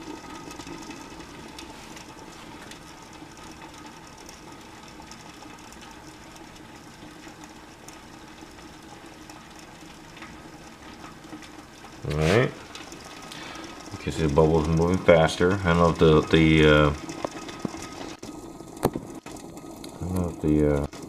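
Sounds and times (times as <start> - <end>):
kettle low rumble: 0.0 - 21.0
ticks of forming bubbles: 0.0 - 21.0.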